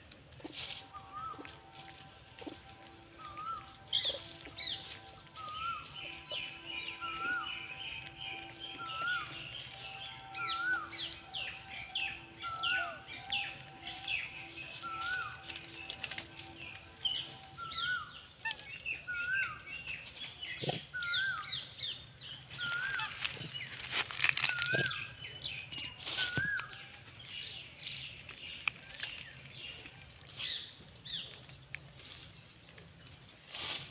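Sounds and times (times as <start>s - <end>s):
birds chirping: 0.8s - 33.4s
bird whistling: 0.9s - 1.4s, 3.2s - 4.8s, 5.4s - 16.2s, 17.0s - 19.7s, 22.6s - 23.3s, 26.1s - 26.8s
rustling: 22.6s - 33.9s.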